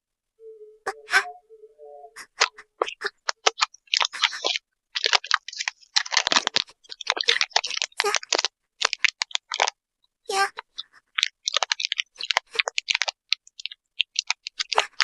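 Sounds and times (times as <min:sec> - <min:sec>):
packaging crinkling: 0:03.2 - 0:09.7, 0:11.1 - 0:15.0.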